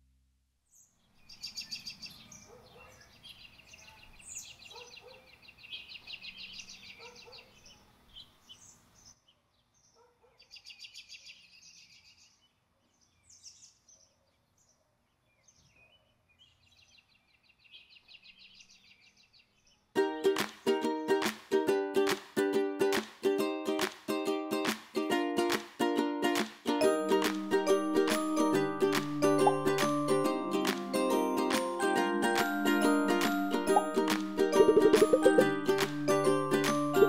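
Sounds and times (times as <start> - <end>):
birds chirping and trilling: 0.7 - 19.9, 34.6 - 35.5.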